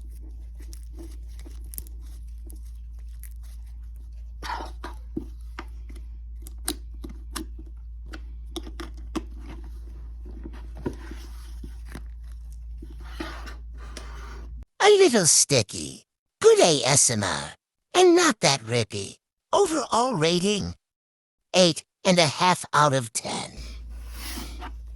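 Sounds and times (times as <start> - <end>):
steady low hum: 23.6 - 24.9.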